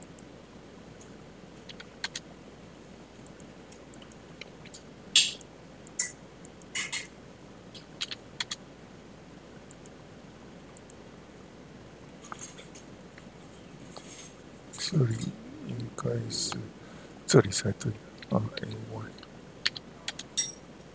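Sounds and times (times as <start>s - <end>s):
faint room hum: 0.0s - 20.9s
keyboard and mouse clicks: 1.0s - 2.2s, 7.8s - 8.6s, 18.2s - 20.5s.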